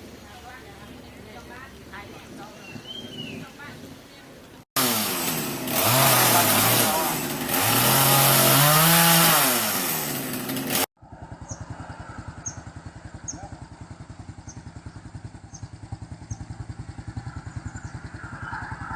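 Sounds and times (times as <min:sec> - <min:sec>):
faint high chirp: 0:02.5 - 0:03.5, 0:12.4 - 0:13.5
loud engine-like noise: 0:04.8 - 0:18.9
small engine idling: 0:04.8 - 0:18.9.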